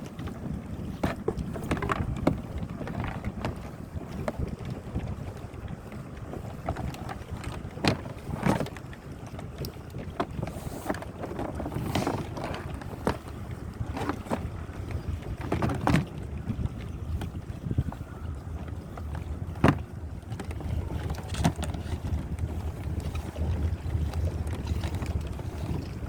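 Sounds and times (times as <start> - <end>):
wind rumble on microphone: 0.0 - 26.0
plastic canoe hull knocking: 0.2 - 4.6, 6.6 - 8.8, 10.0 - 14.7, 15.3 - 17.4, 19.0 - 26.0.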